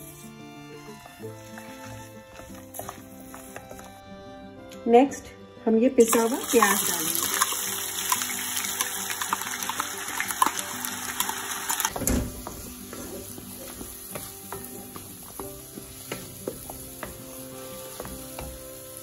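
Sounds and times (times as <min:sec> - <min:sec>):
onion paste sizzling in oil: 0:00.0 - 0:04.0, 0:06.0 - 0:19.0
wooden spatula scraping a pan: 0:00.0 - 0:04.0, 0:12.6 - 0:18.8.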